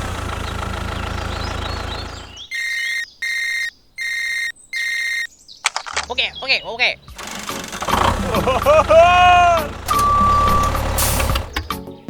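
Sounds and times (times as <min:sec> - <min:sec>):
low motor hum: 0:00.0 - 0:02.5, 0:07.1 - 0:11.7
high electronic beeps: 0:02.5 - 0:05.3.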